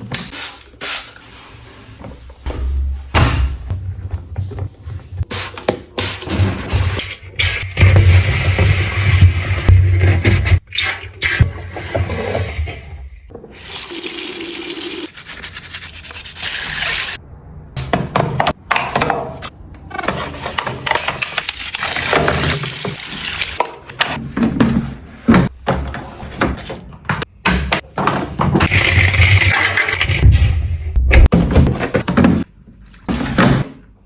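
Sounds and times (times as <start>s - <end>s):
scrubbing and wiping: 15.1s - 17.2s
running and splashing water: 28.7s - 30.4s.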